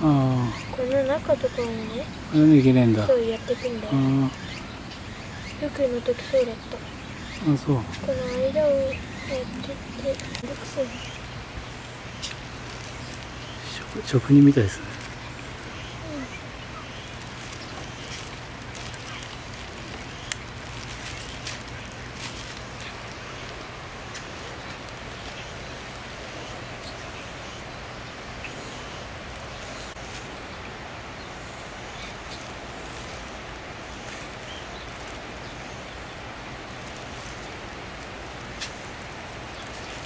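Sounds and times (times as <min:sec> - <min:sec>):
outdoor background noise: 0:00.0 - 0:40.0.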